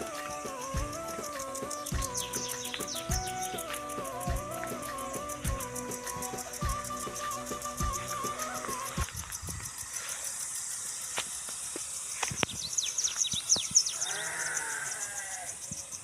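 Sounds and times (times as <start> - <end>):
music track: 0.0 - 9.3
quick high chirps: 0.0 - 10.6
livestock bleating: 14.0 - 15.5.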